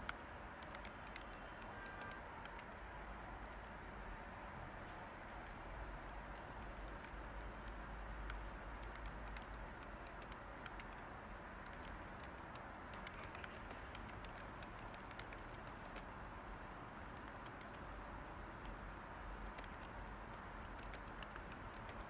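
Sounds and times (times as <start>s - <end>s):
typing on computer keyboard: 0.0s - 2.7s, 6.2s - 16.1s, 17.0s - 17.9s, 19.4s - 22.0s
white noise hiss: 0.0s - 22.0s.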